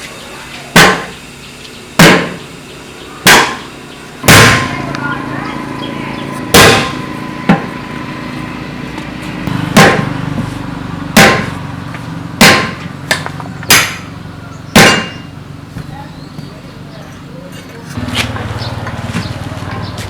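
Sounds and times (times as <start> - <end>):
steady low hum: 0.0 - 20.0
heavy hammer strikes: 0.7 - 1.2, 2.0 - 2.5, 3.2 - 14.1, 14.7 - 15.4.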